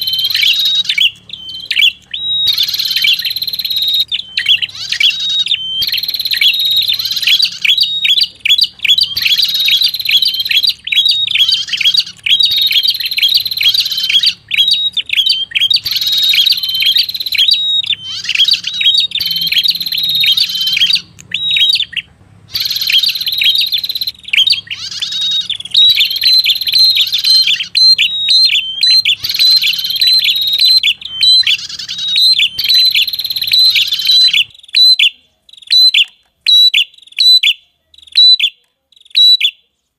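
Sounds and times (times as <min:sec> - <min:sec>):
bird shrill chirps: 0:00.0 - 0:39.6
faint low hum: 0:00.0 - 0:39.9.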